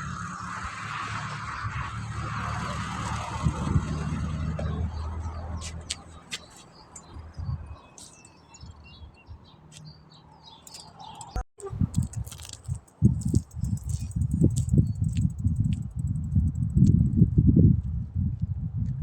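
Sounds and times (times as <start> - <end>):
birds chirping: 1.5 - 11.8.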